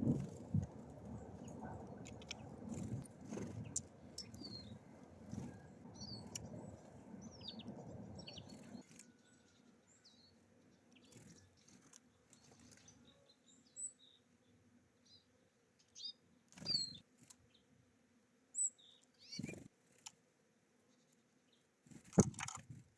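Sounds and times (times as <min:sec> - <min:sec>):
low background rumble: 0:00.0 - 0:08.8
songbirds chirping: 0:00.0 - 0:22.3.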